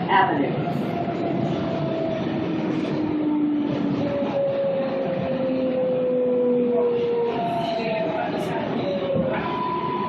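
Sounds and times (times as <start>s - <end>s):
subway car rumbling: 0.0s - 10.0s.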